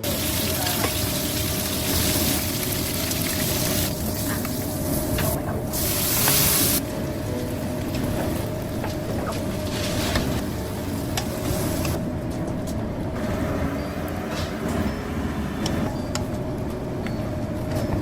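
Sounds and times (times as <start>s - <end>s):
food sizzling in a pan: 0.0s - 6.8s.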